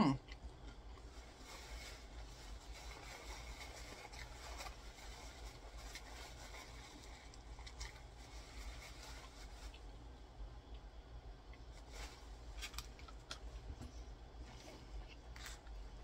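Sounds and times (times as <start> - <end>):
steady low hum: 0.0 - 16.0
light crackles of chicken handled: 0.6 - 10.0
chewing fried chicken: 2.1 - 10.0.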